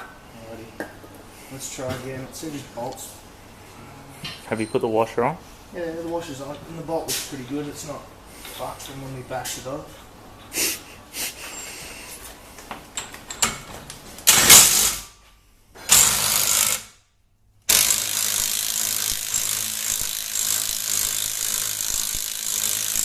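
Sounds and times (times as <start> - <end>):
impact wrench driving bolts: 14.2 - 15.1, 15.9 - 16.9, 17.7 - 23.0.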